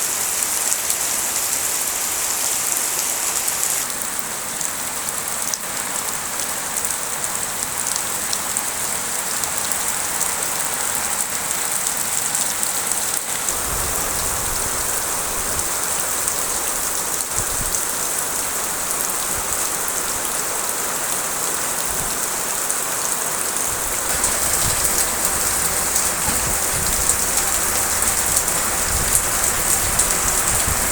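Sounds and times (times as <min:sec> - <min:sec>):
rain pattering: 0:00.0 - 0:30.9.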